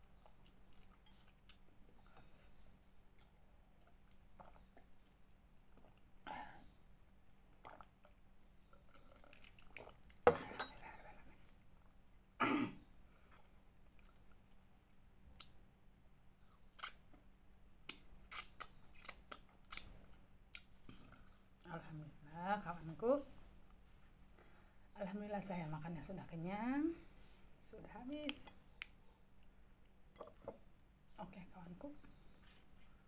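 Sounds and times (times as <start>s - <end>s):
soft chewing: 0.0s - 6.2s, 7.6s - 10.2s, 13.1s - 15.6s, 16.2s - 21.4s, 32.0s - 33.0s
cough-like noise: 12.4s - 12.9s.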